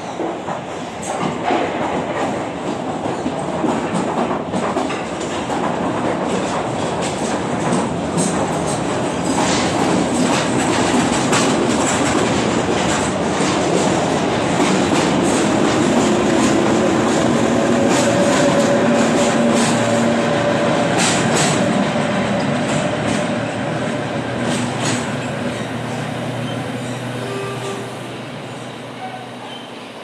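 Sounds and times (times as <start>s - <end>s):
locomotive whine: 15.4s - 30.0s.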